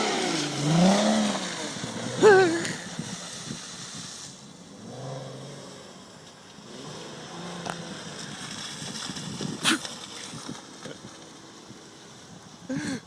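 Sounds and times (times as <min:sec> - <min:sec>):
car engine running at low revs: 0:00.0 - 0:12.9
wind noise on microphone: 0:02.6 - 0:04.4, 0:08.3 - 0:12.9.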